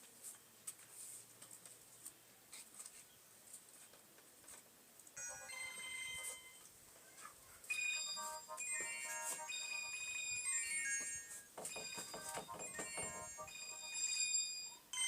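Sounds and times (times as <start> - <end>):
phone ringtone beeping: 5.2 - 6.7, 7.7 - 15.0.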